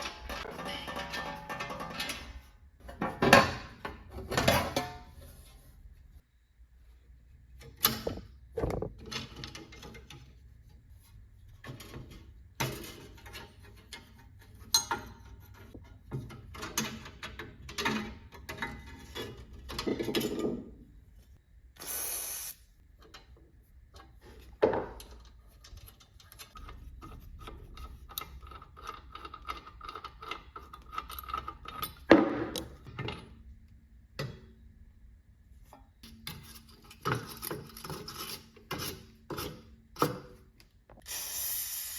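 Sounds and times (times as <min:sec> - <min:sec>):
short hiss: 0:21.8 - 0:22.6, 0:41.0 - 0:41.9
metal parts clicking and rattling: 0:25.0 - 0:33.4.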